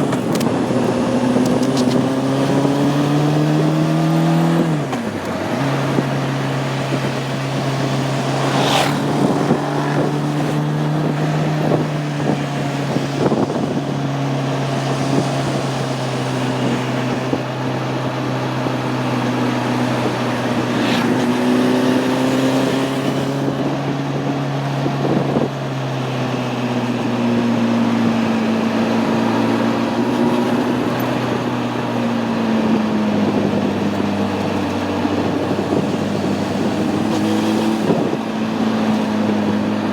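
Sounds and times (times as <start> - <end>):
wind on microphone: 0.0 - 25.7, 26.7 - 39.9
motorcycle engine cruising: 0.0 - 39.9.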